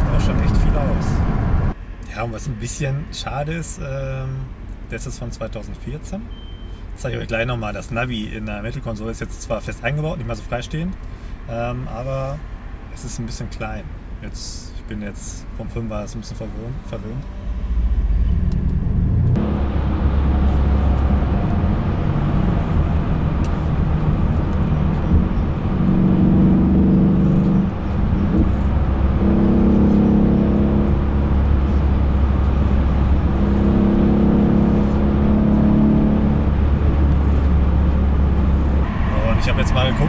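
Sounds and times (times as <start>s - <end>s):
low road rumble: 0.0s - 40.0s
car engine running: 17.5s - 40.0s.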